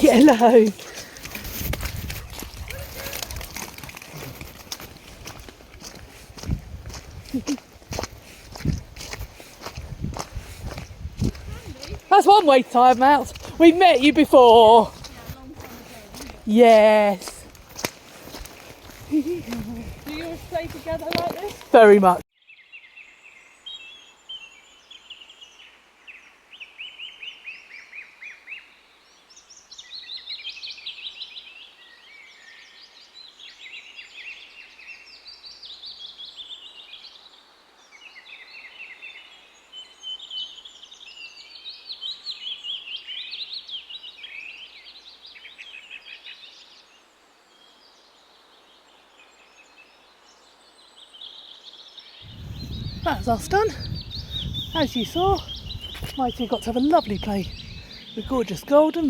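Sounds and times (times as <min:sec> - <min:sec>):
birds chattering: 0:00.0 - 0:22.2, 0:52.2 - 0:59.0
faint woodland background noise: 0:00.0 - 0:59.0.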